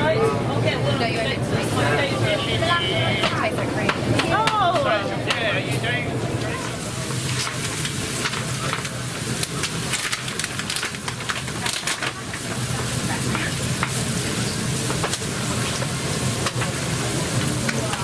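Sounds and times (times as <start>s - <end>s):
onions sizzling in a pan: 6.4s - 18.0s.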